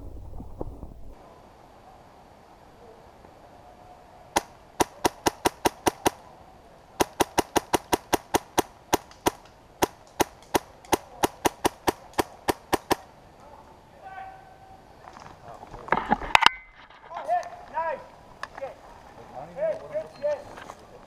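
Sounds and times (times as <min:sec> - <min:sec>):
airsoft gun shots: 0:07.0 - 0:13.0.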